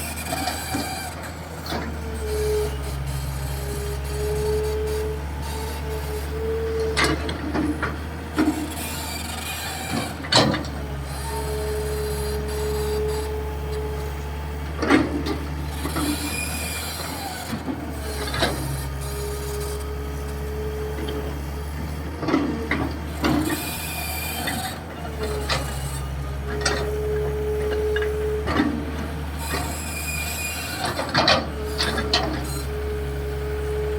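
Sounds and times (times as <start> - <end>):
diesel engine drone: 0.0 - 33.9.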